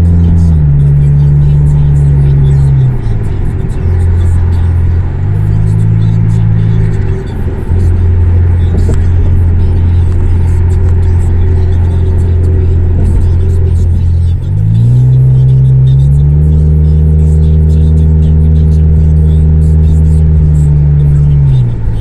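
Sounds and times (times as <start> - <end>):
loud car engine idling and revving: 0.0 - 22.0.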